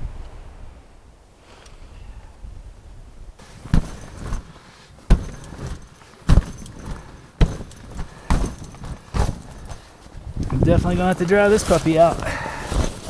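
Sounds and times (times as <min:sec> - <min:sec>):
slow footsteps in snow: 0:03.4 - 0:13.0.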